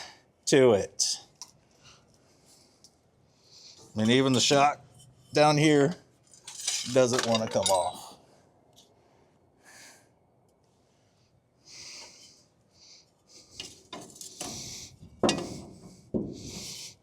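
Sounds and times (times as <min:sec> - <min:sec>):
hand tools clinking on metal: 0:04.0 - 0:04.7, 0:06.4 - 0:08.1.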